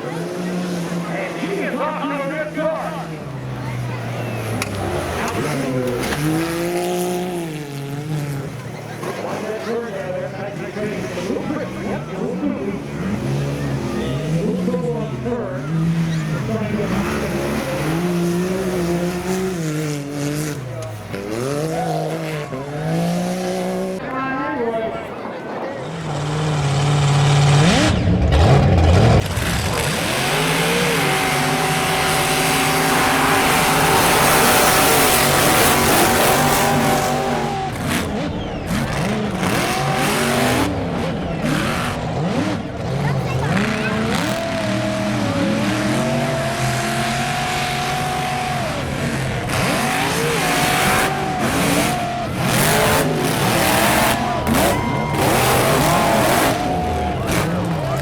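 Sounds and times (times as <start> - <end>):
tires spinning: 0.0 - 58.0
truck engine revving: 0.0 - 58.0.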